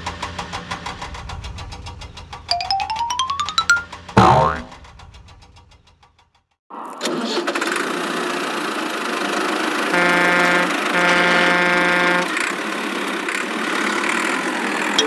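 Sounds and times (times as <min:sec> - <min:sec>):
vehicle engine running: 0:00.0 - 0:02.5
horn honking: 0:09.9 - 0:12.4.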